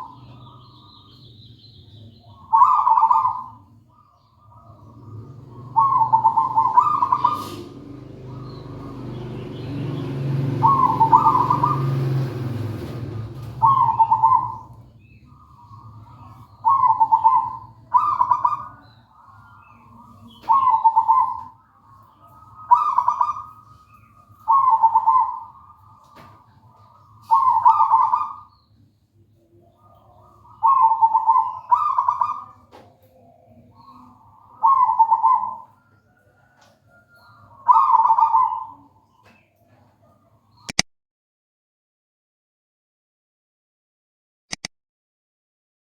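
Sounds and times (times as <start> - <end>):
dove cooing: 0.0 - 28.8, 29.4 - 40.6
sharp click: 44.5 - 44.7.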